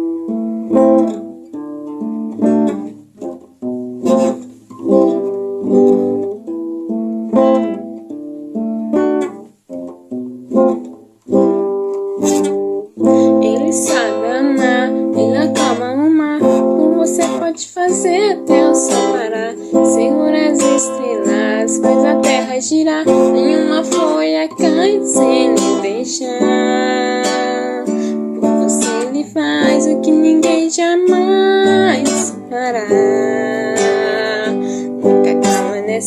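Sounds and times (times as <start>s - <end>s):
acoustic guitar playing: 0.0s - 36.0s
person humming: 13.3s - 16.9s.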